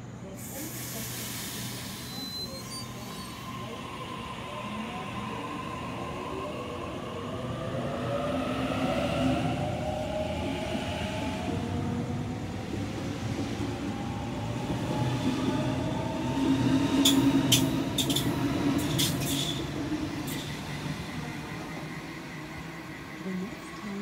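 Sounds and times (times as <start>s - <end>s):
train wheel rumble: 0.0s - 24.0s
electric train motors whining: 9.4s - 24.0s.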